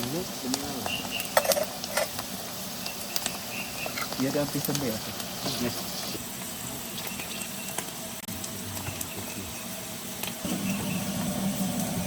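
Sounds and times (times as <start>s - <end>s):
oil sizzling in a pan: 0.0s - 12.0s
low hum: 6.2s - 12.0s.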